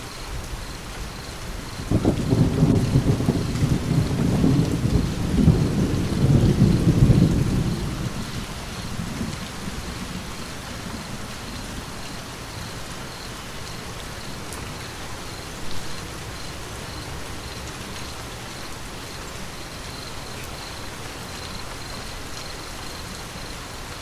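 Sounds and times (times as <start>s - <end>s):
steady rain: 0.0s - 24.0s
thunder rumbling: 1.6s - 18.0s.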